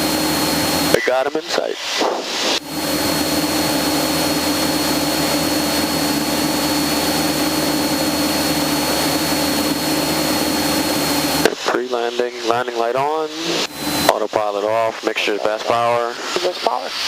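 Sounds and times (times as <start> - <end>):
thin high whine: 0.0 - 17.0
light aircraft engine droning: 2.6 - 15.0.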